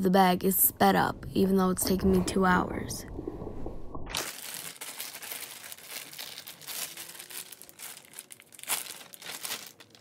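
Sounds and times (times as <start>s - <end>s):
plastic bag crinkling: 4.1s - 10.0s.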